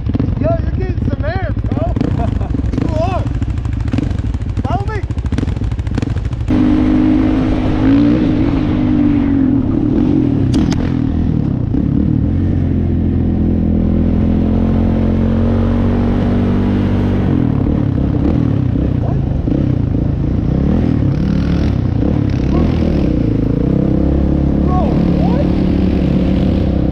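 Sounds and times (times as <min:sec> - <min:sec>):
atv engine running: 0:00.0 - 0:26.9.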